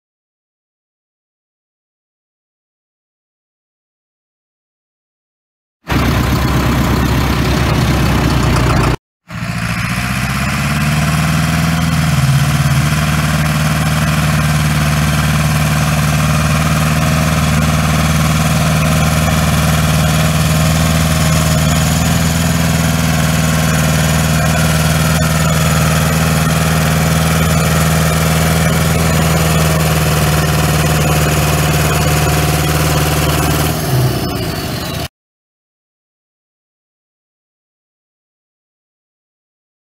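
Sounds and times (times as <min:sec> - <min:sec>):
tractor engine running: 0:05.9 - 0:35.1.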